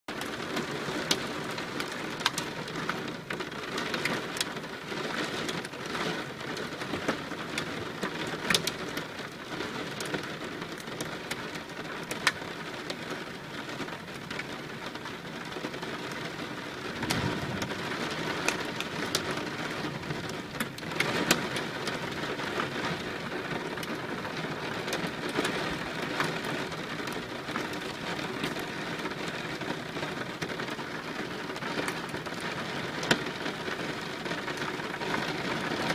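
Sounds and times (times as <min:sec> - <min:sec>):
rain falling: 0:00.1 - 0:35.9
raindrops ticking on surface: 0:00.1 - 0:35.9
low rumble: 0:17.0 - 0:20.2.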